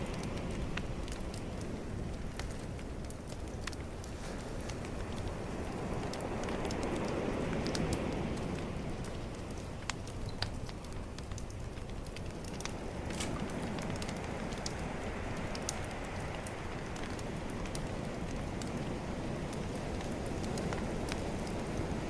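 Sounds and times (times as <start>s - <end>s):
bonfire crackling and popping: 0.0s - 22.0s
ocean waves: 3.8s - 9.9s, 12.4s - 22.0s.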